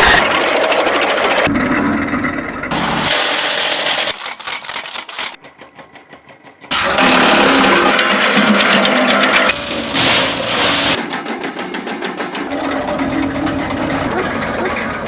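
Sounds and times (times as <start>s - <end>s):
wood chipper rattling: 0.0s - 15.0s.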